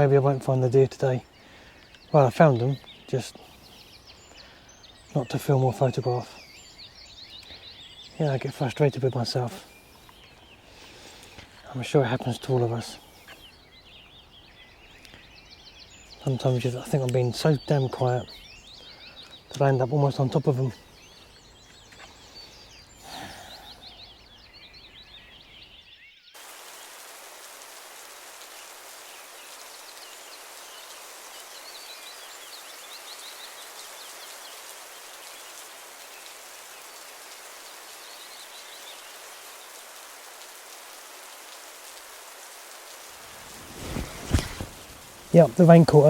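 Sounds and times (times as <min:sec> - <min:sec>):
rain falling on woodland: 0:00.0 - 0:46.0
faint bird chirps: 0:00.7 - 0:27.8.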